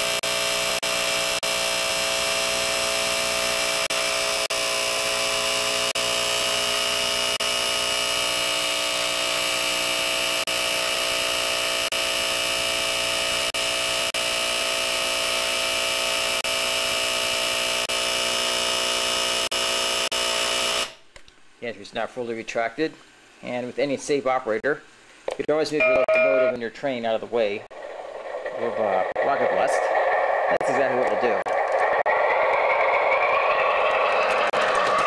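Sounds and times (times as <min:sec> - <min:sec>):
small electric motor buzzing: 0:00.0 - 0:21.0.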